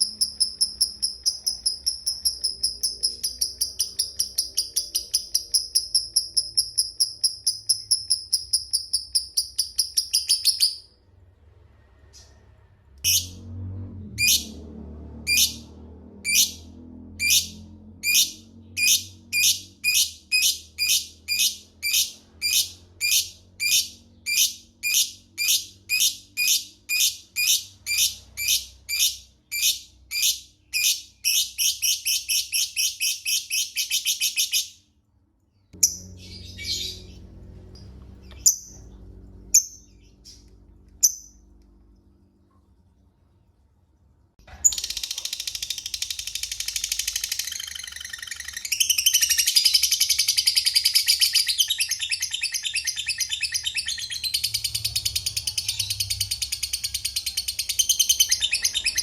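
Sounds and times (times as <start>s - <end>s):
lovebird chattering trill: 0.0s - 10.8s
lovebird ticking calls: 0.0s - 10.8s.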